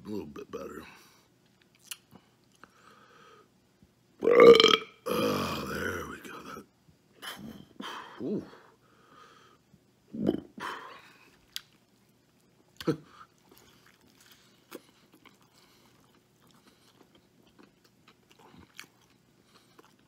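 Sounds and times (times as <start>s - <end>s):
man chewing: 11.2s - 20.0s.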